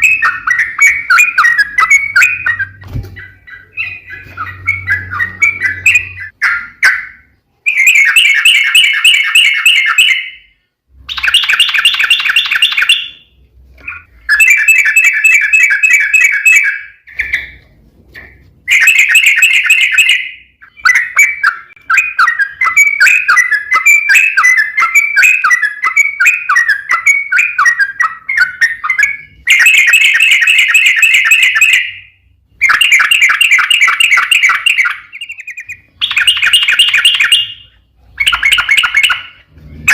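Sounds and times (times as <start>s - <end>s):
bulbul fast chattering song: 11.1s - 13.3s, 32.6s - 39.9s.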